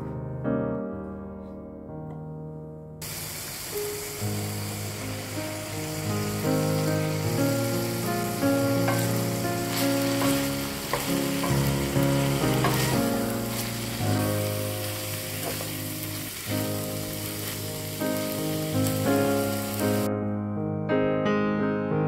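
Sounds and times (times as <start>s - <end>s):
meat and mushrooms sizzling in pan: 3.0s - 20.1s
background music: 4.6s - 20.1s
spatula knocking against pan: 8.8s - 11.9s, 12.5s - 13.1s
wooden spatula stirring: 8.8s - 14.4s.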